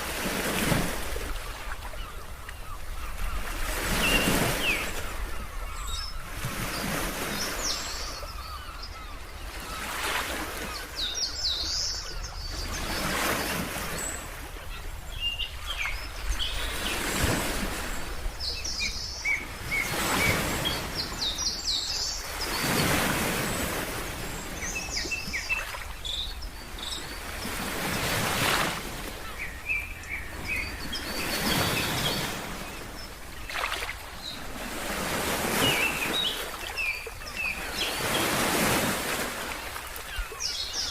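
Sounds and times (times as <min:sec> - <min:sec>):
birds chirping: 0:01.3 - 0:40.9
ocean waves washing: 0:09.6 - 0:40.9.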